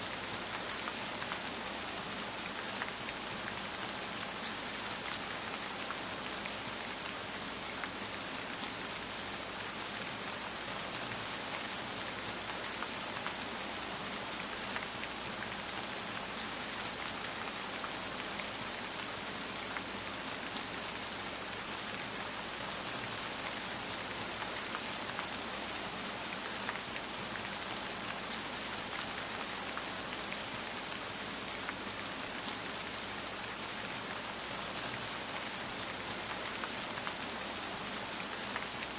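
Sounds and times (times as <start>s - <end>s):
rain pattering on a surface: 0.0s - 38.9s.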